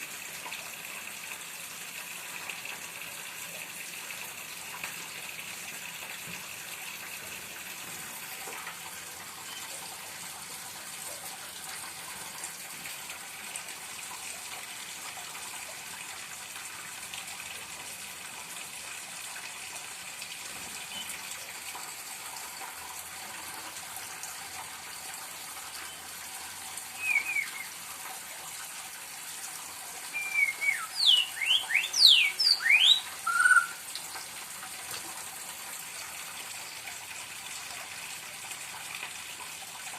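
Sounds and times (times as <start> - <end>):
bird singing whistles: 27.0 - 27.7, 30.1 - 33.8.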